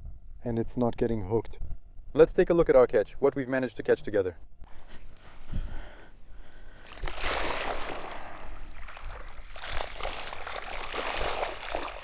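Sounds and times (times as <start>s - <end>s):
water splashing and pouring: 6.8s - 12.0s.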